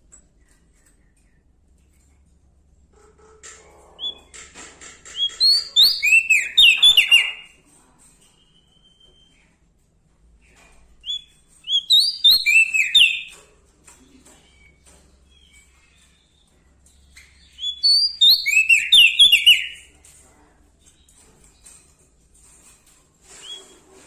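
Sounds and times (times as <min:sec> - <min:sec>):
songbird chirping: 0:05.1 - 0:07.6, 0:10.5 - 0:20.1.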